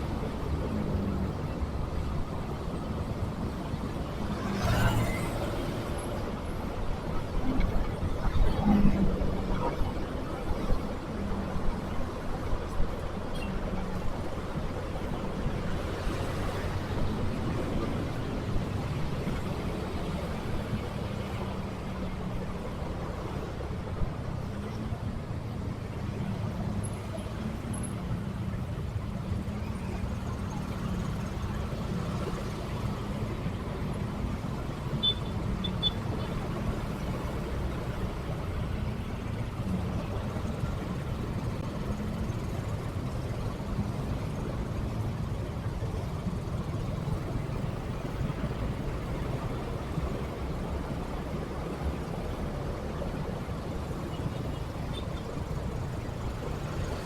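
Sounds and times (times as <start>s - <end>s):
low road rumble: 0.0s - 57.0s
short high beeps: 35.0s - 36.0s.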